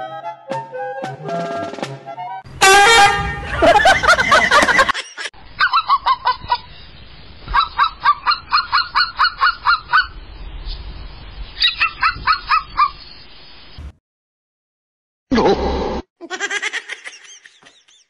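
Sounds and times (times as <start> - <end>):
rapid pitched animal calls: 7.5 - 10.2, 11.6 - 13.0.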